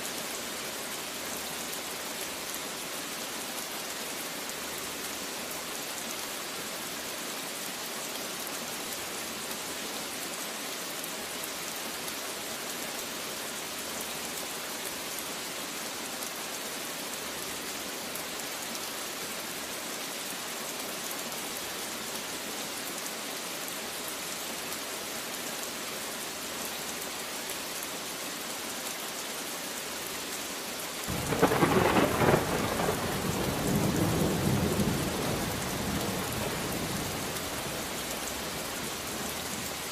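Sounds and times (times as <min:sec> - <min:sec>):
steady rain falling: 0:00.0 - 0:39.9
thunderclap rumbling: 0:31.1 - 0:39.1.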